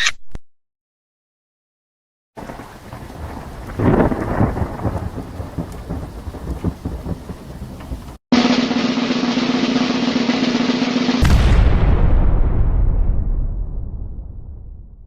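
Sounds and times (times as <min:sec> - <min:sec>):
rain hissing: 0:02.4 - 0:08.2
thunder rumbling: 0:02.4 - 0:08.2, 0:11.2 - 0:15.0.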